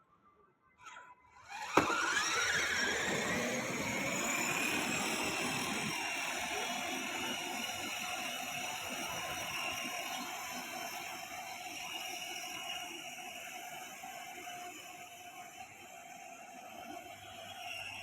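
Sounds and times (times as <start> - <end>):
electric motor whining: 1.5 - 15.6.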